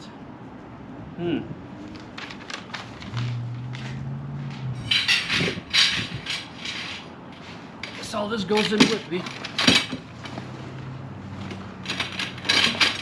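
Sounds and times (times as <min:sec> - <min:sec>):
tent poles and canvas clattering: 0:04.6 - 0:13.0.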